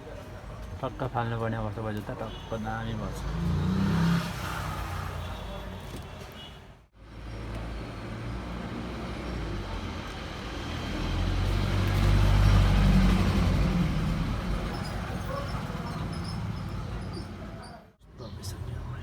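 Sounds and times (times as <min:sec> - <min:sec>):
traffic noise: 0:00.0 - 0:19.0
vehicle engine passing: 0:03.0 - 0:05.4, 0:07.7 - 0:17.6.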